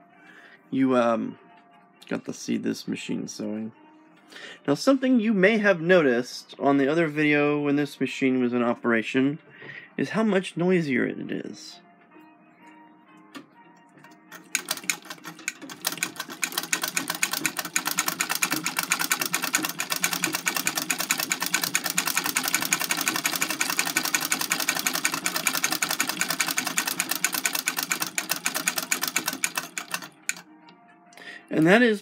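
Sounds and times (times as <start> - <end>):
sewing machine clattering: 14.3 - 30.4.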